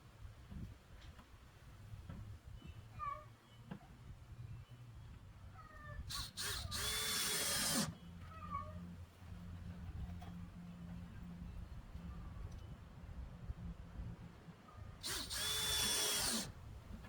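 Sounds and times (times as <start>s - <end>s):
power drill driving screw: 6.1s - 8.0s, 15.0s - 16.6s.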